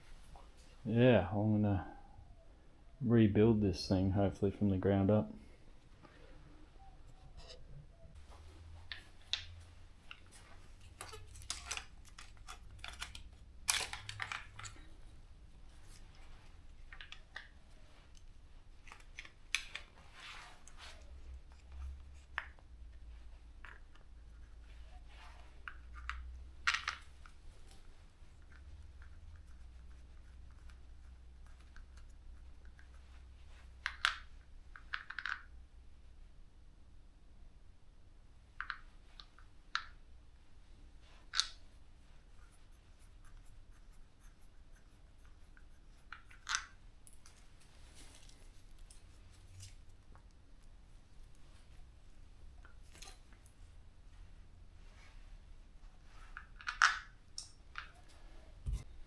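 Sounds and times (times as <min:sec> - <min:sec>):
small metal clicks and knocks: 0:46.1 - 0:47.5.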